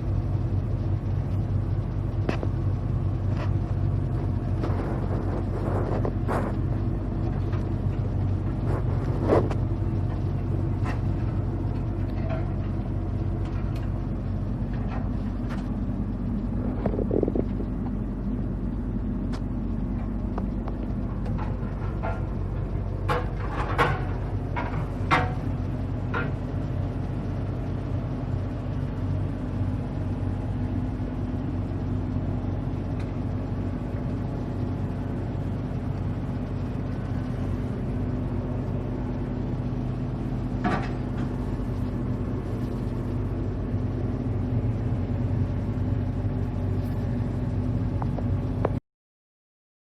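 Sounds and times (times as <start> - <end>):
excavator diesel engine running: 0.0 - 48.8
metal clanks and knocks: 10.8 - 12.8, 20.0 - 25.5, 40.6 - 41.4.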